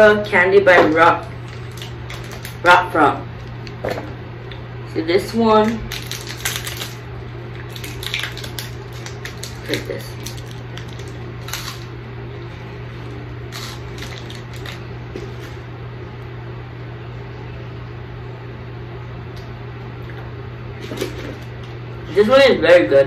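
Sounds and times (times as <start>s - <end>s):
crunching and chewing candy: 1.3s - 2.6s, 5.6s - 11.9s, 13.1s - 14.8s.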